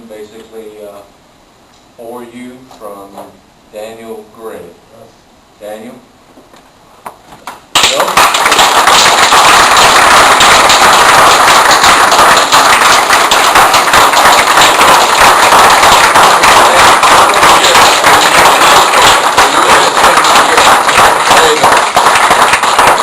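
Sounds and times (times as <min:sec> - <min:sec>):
audience applauding: 0:07.5 - 0:23.0.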